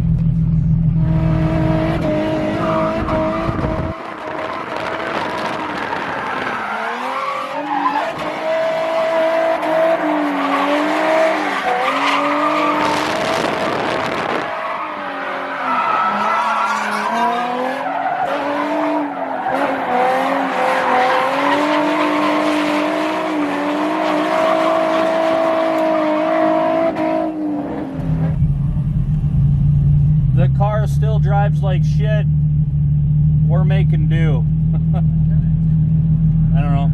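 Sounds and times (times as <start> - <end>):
car engine revving hard: 1.0 - 28.4
tyres squealing and skidding: 1.4 - 27.0.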